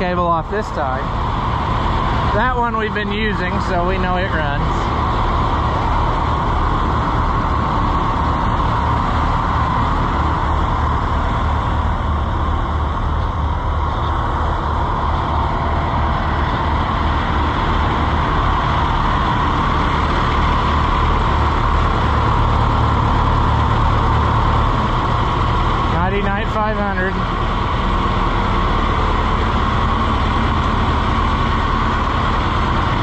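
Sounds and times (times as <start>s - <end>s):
tractor engines idling: 0.0s - 33.0s.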